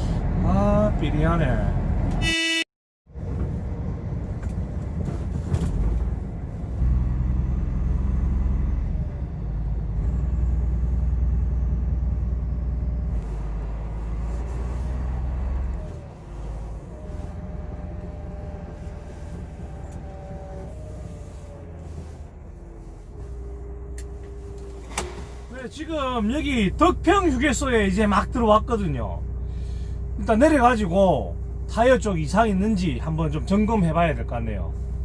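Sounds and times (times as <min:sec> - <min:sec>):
truck engine and tyres rumbling: 0:00.0 - 0:35.0
short beep: 0:02.2 - 0:02.6.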